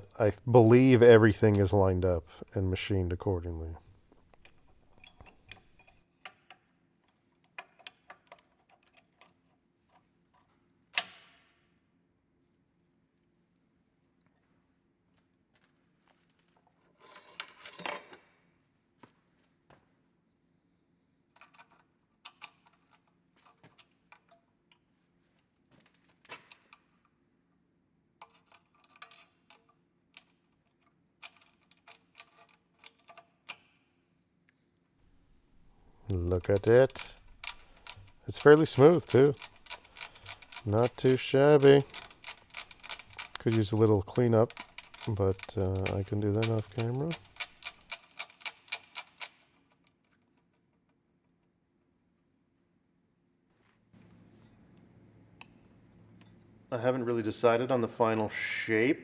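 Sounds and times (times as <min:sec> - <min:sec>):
metal wrench parts clicking and clinking: 0:04.3 - 0:06.0, 0:36.2 - 0:49.5.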